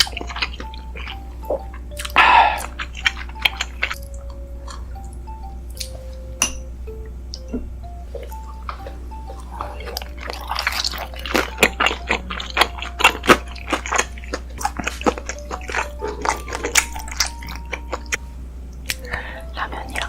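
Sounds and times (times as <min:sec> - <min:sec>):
soft background music: 0:00.0 - 0:20.0
steady low hum: 0:00.0 - 0:20.0
biting and chewing: 0:08.2 - 0:18.2.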